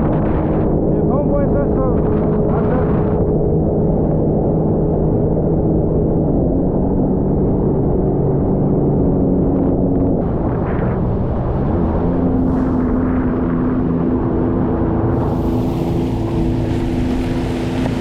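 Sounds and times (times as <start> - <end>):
jet ski engine running: 0.0 - 18.0.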